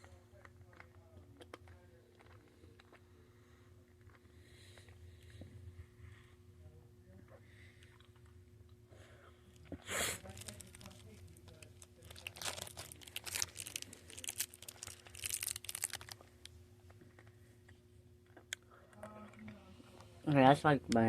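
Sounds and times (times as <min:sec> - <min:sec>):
hard candy crunching: 0:00.0 - 0:05.0, 0:09.5 - 0:16.5.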